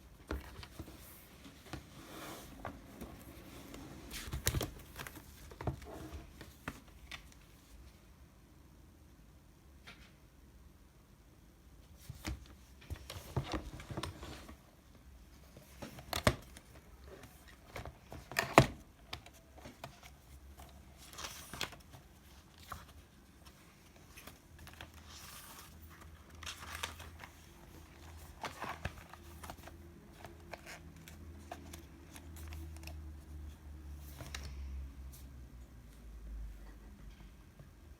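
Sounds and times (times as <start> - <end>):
paper rustling: 0.3 - 7.4, 15.5 - 33.0.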